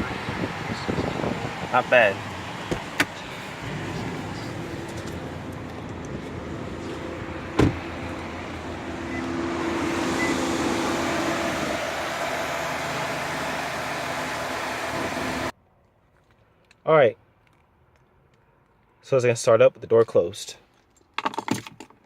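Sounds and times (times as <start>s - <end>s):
car engine running: 0.0s - 15.5s.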